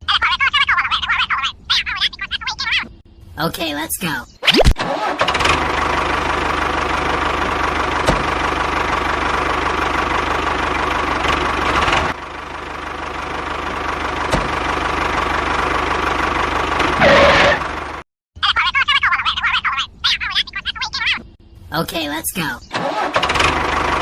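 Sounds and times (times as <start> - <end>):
tractor engine knocking: 5.3 - 18.0, 22.8 - 24.0.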